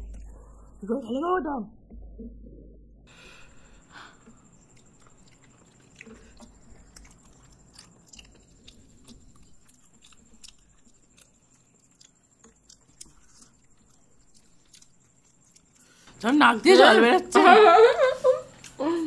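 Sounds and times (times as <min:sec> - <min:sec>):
faint chewing and mouth sounds: 0:03.1 - 0:16.3, 0:18.4 - 0:19.0.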